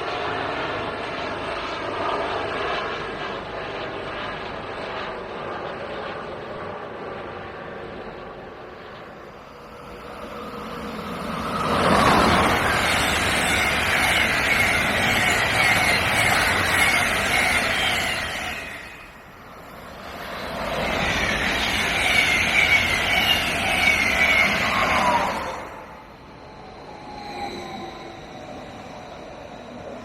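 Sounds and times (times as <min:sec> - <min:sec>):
trains rushing past: 0:07.3 - 0:30.0
wheels squealing: 0:09.6 - 0:30.0.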